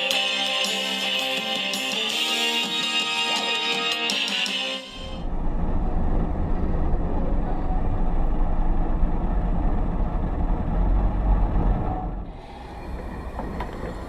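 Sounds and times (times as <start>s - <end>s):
music: 0.0s - 5.2s
train rumbling in motion: 5.0s - 14.0s.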